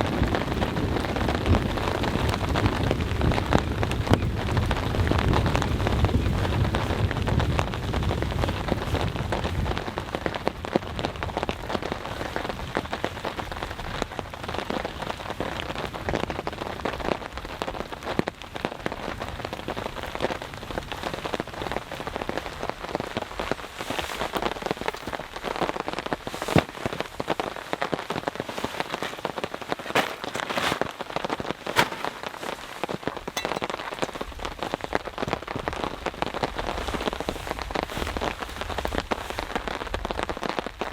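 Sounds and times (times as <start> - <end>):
thunder rumble: 0.0 - 15.0
heavy rain falling: 0.0 - 40.9.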